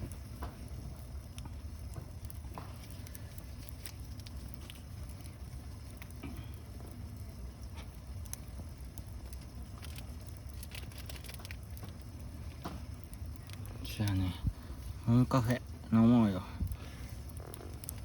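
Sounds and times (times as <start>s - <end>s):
campfire crackling and popping: 0.0s - 18.0s
steady low rumble: 0.0s - 18.0s.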